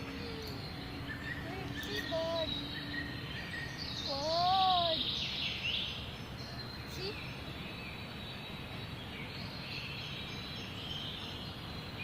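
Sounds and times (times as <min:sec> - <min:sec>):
arched rising and falling call: 0:00.0 - 0:05.8
birds calling: 0:00.0 - 0:12.0.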